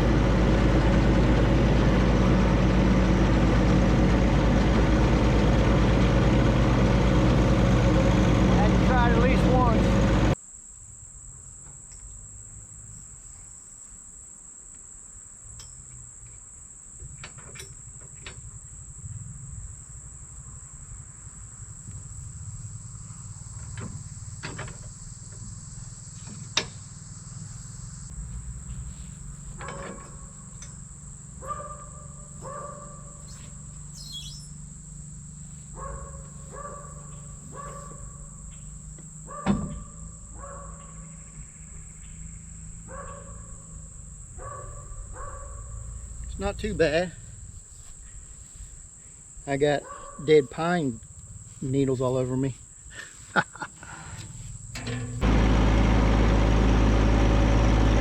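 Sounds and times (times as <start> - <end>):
low steady rumble: 0.0 - 10.4, 17.9 - 49.4
insects buzzing: 5.1 - 57.7
short two-pitched calls: 33.2 - 34.6.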